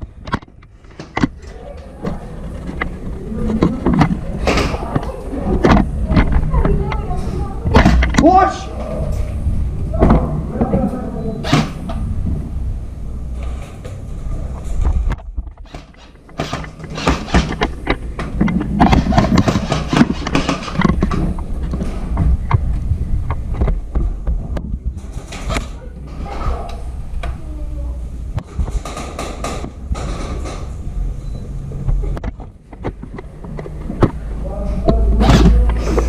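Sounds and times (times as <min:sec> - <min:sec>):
low rumble: 0:08.7 - 0:10.7, 0:21.0 - 0:28.7
knocks: 0:28.4 - 0:30.7.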